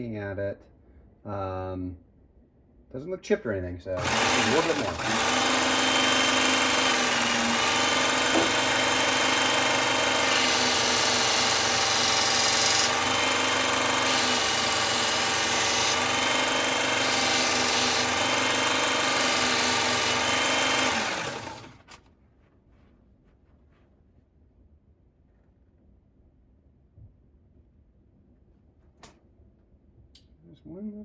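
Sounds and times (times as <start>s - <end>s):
blade grinding on abrasive: 4.0s - 22.0s
knife-sharpening machine running: 4.0s - 22.0s.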